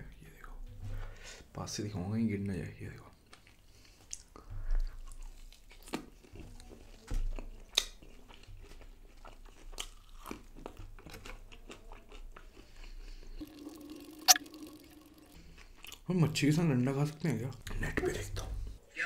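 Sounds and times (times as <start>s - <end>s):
crunchy biting and chewing: 4.9s - 13.3s.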